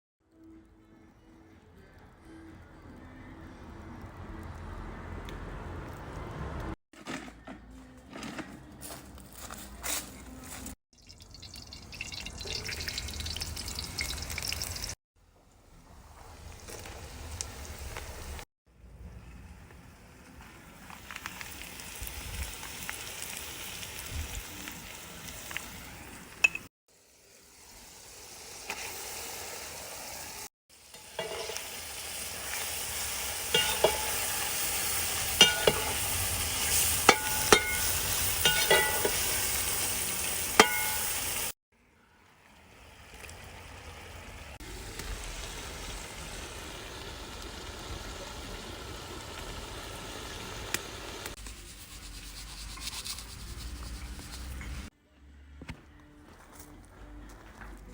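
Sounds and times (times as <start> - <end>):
food sizzling in a pot: 11.0 - 15.0, 16.0 - 18.4, 19.5 - 41.6, 42.2 - 54.9
metal utensil clinking on pot: 31.0 - 31.6, 33.5 - 34.4, 35.4 - 36.1, 37.1 - 39.5, 40.6 - 41.4.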